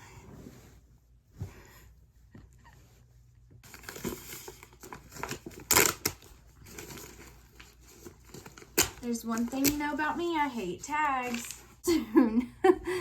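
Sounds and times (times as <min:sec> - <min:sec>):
plastic packaging crinkling and tearing: 0:03.6 - 0:10.2, 0:11.0 - 0:11.8.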